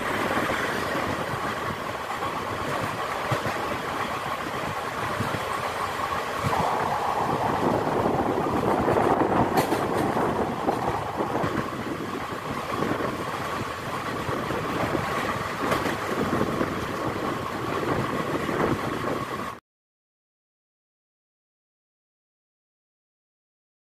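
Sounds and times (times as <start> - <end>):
train wheels rumbling on rails: 0.0 - 19.6.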